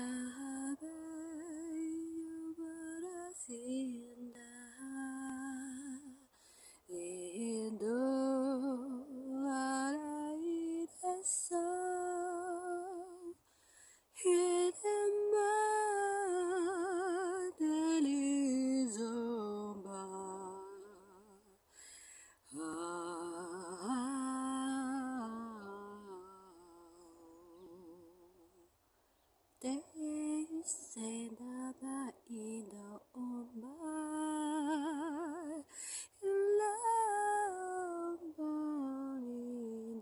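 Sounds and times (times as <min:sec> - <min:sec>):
woman singing wordlessly: 0:00.0 - 0:13.5, 0:14.1 - 0:21.7, 0:22.4 - 0:28.7, 0:29.6 - 0:40.0.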